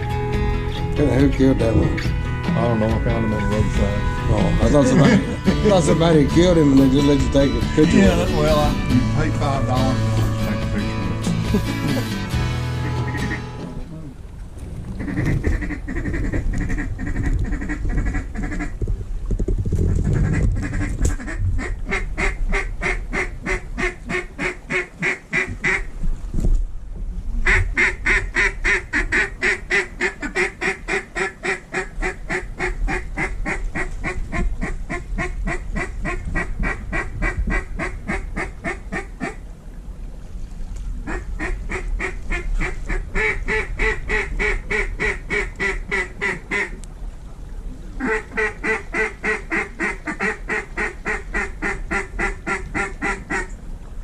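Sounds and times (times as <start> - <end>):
duck quacking rapidly: 12.8 - 13.6.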